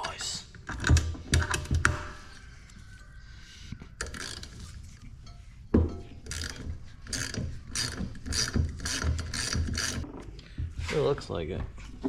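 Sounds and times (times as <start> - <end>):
ratchet wrench clicking strokes: 6.3 - 10.0.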